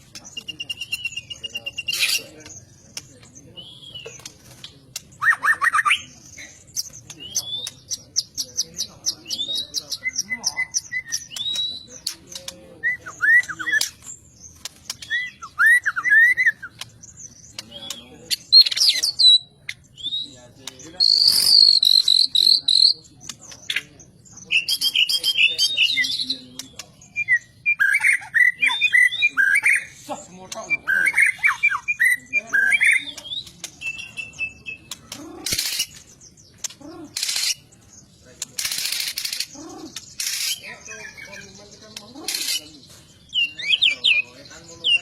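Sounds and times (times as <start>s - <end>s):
harsh buzzy bird phrase: 0.0s - 45.0s
songbird singing whistles: 0.3s - 2.3s, 12.8s - 14.2s, 14.9s - 23.0s, 24.4s - 29.9s, 30.8s - 35.0s.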